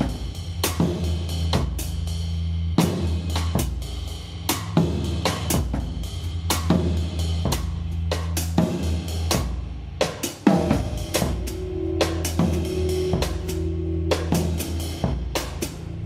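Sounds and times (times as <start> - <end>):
drum kit beat: 0.0 - 16.0
bass line: 9.3 - 16.0
live band music: 10.1 - 16.0.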